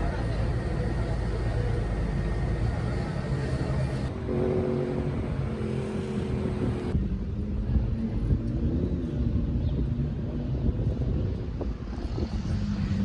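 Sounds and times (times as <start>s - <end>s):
vehicle engine running: 0.0s - 4.1s.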